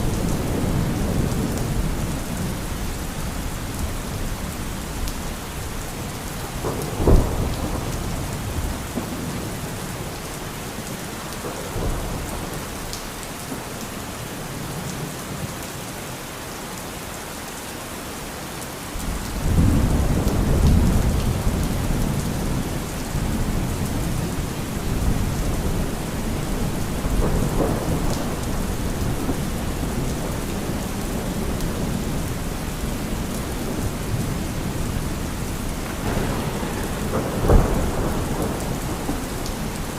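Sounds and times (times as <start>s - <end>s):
thunder crack and rumble: 0.0s - 10.2s, 19.0s - 39.9s
heavy rain: 0.0s - 39.9s.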